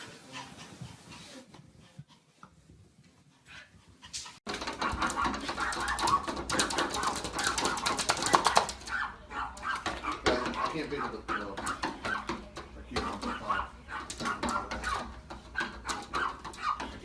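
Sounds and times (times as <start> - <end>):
dog sounds: 0.0 - 17.0
rapid clicks: 4.5 - 9.0.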